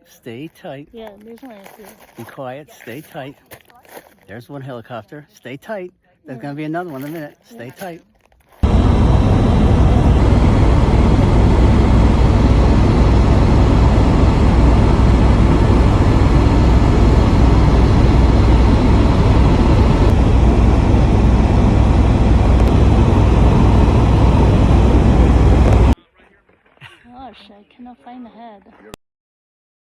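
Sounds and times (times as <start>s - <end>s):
helicopter engine and rotor: 8.6s - 26.0s.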